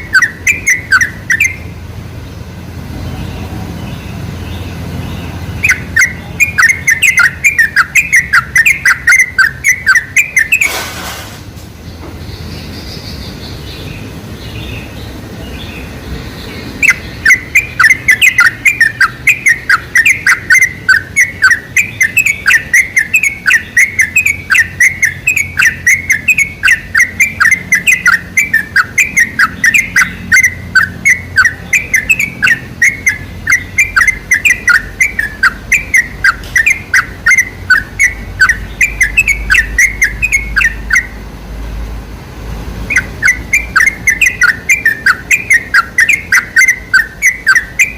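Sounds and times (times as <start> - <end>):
bulbul singing rapid notes: 0.0 - 10.8, 14.0 - 41.4, 42.7 - 47.9
faint chirps: 2.9 - 10.9, 14.7 - 41.2.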